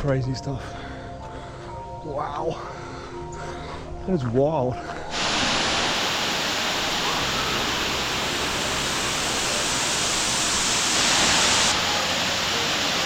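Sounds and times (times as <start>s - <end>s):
waterfall roaring: 5.1s - 13.0s.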